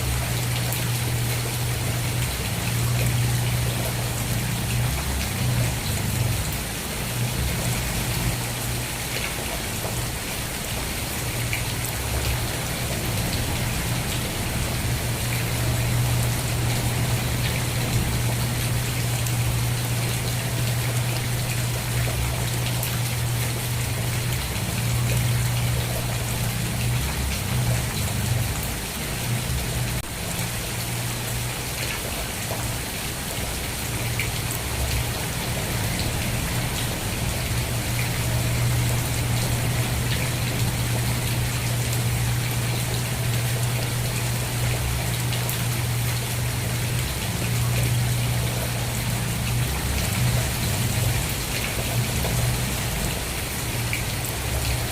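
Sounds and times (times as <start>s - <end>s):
rain patter: 0.0s - 54.9s.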